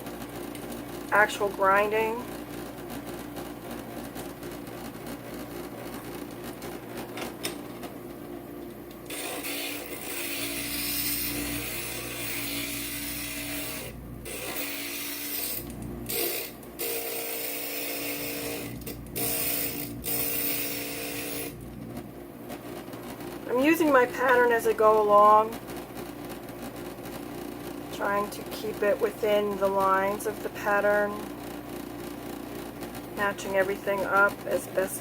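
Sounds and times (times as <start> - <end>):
grinder motor humming: 9.1 - 21.8.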